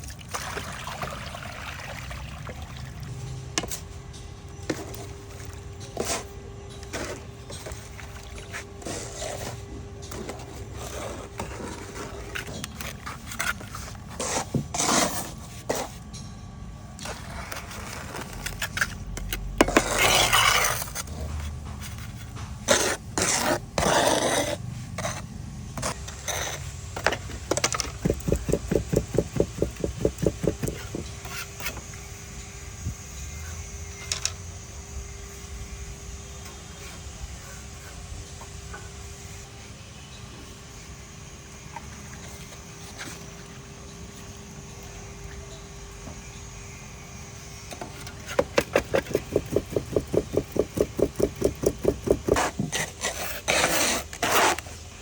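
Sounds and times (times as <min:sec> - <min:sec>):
scraping cement: 0:27.8 - 0:31.5, 0:48.6 - 0:54.6
knocks on cement: 0:27.9 - 0:31.1, 0:48.6 - 0:52.8.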